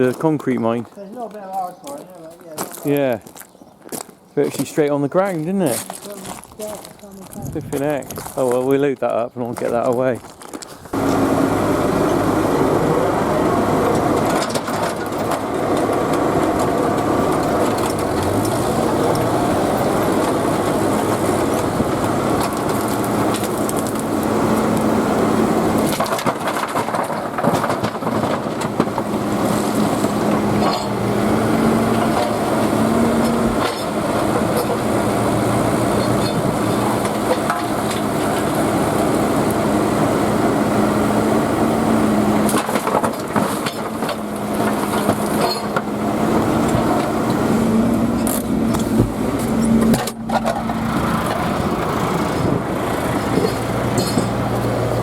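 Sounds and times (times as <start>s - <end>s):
concrete rubble scraping and crushing: 0.0s - 11.0s, 25.7s - 39.6s
digger engine running: 10.9s - 55.0s.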